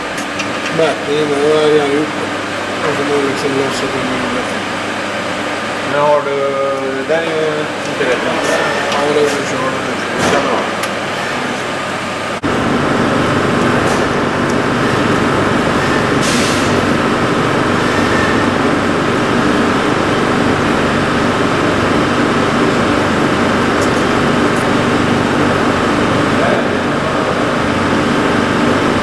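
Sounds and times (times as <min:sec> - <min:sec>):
valve grinder running: 0:10.8 - 0:29.0.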